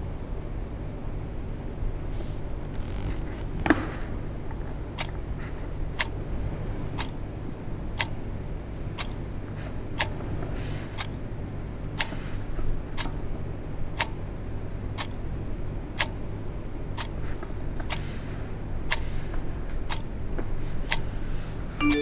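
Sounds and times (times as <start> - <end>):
clock ticking: 19.9 - 20.1.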